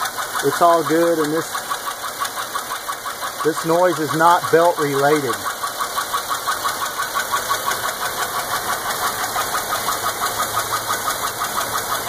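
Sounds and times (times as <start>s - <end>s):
car engine running: 0.0s - 12.0s
fast regular chirping: 0.3s - 8.4s.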